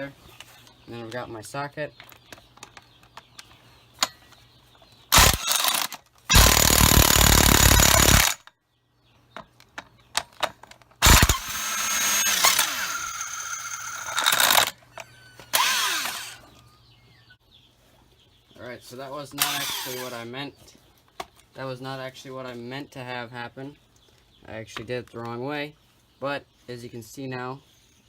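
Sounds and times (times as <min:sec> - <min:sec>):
impact wrench bursts: 0:05.1 - 0:08.5, 0:11.0 - 0:14.8, 0:15.5 - 0:16.4, 0:19.4 - 0:20.2.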